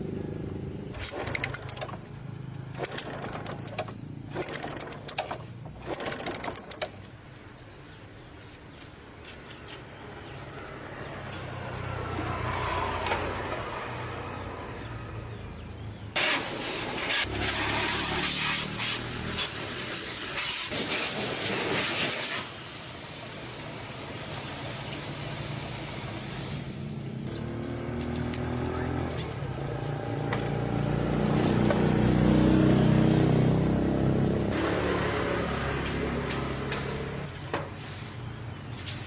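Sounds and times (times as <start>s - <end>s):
motor engines running: 0.0s - 7.4s, 25.3s - 39.0s
loud hiss of air: 16.2s - 27.0s.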